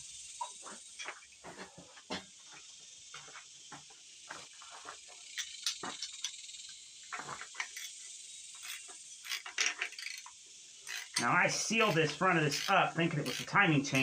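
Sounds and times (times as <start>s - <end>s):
insects droning: 0.0s - 14.0s
hand tools clinking: 10.9s - 14.0s.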